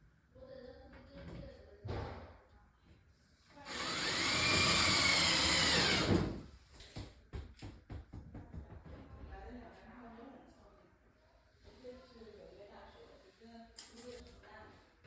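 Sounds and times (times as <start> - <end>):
power drill running: 3.7 - 6.4.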